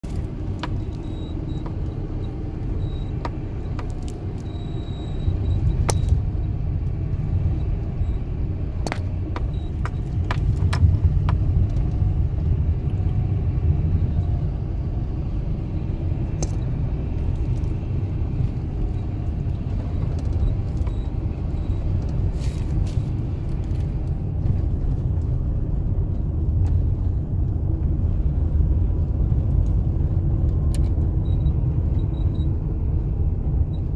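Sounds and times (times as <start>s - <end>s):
low rumble of car: 0.0s - 33.9s.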